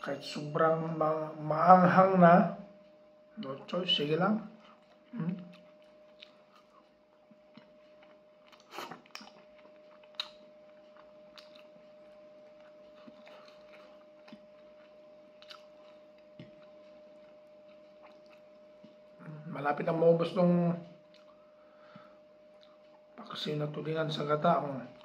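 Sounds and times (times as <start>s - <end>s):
faint steady hum: 0.0s - 25.0s
man chewing food: 4.4s - 19.4s, 20.8s - 23.5s.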